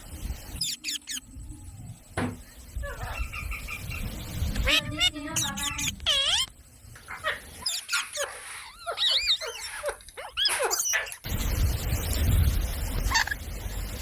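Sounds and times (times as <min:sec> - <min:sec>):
parrot chirping and squawking: 0:00.5 - 0:01.2, 0:02.9 - 0:11.3, 0:13.0 - 0:13.4.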